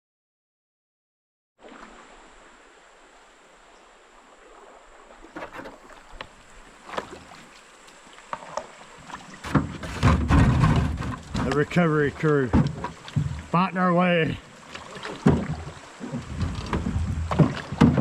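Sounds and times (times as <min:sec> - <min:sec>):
paddles knocking against hull: 0:05.2 - 0:18.0
wind buffeting microphone: 0:15.4 - 0:18.0.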